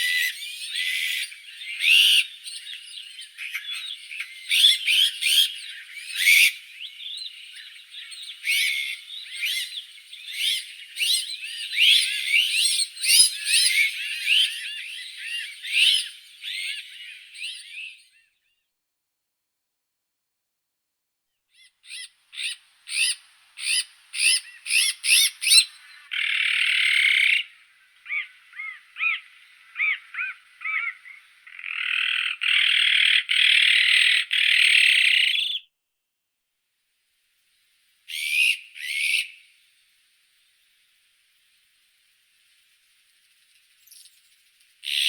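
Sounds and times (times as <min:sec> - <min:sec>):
magpie harsh rasping calls: 0:28.1 - 0:35.5.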